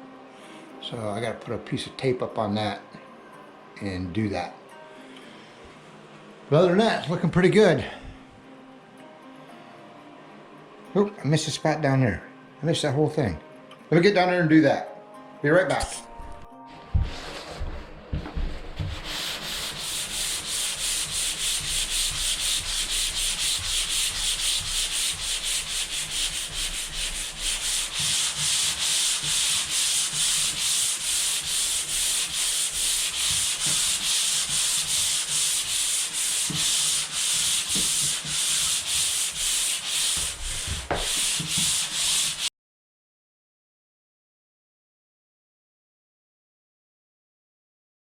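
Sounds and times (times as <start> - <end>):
sandpaper rasping on drywall: 17.0 - 42.5.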